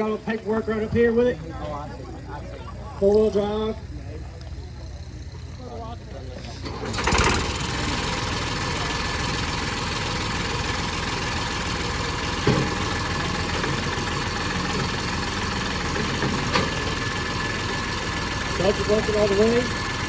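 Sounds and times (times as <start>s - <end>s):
diesel tractor engine idling: 0.0s - 20.0s.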